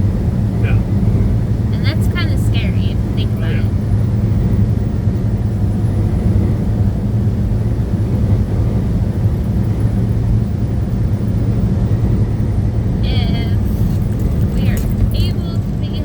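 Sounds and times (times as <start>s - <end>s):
truck engine drone: 0.0s - 16.0s
tyres on road: 12.3s - 16.0s.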